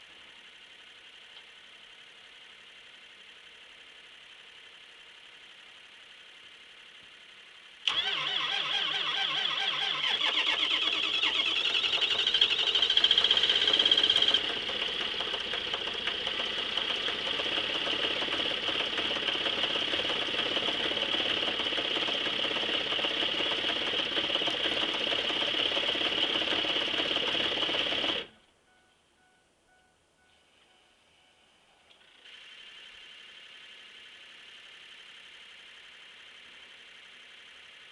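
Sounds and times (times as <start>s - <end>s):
diesel engine cold starting: 7.8s - 28.4s.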